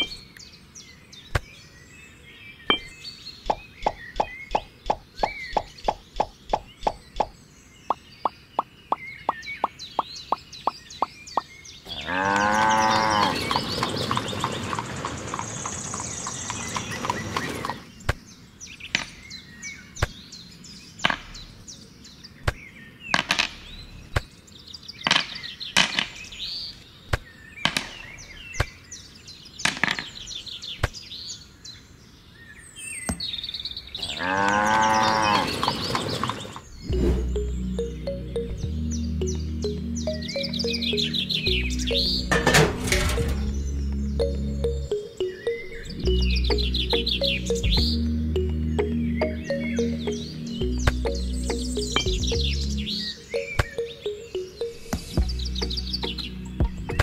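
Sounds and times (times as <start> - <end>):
cow mooing: 11.9 - 13.6, 34.0 - 35.7.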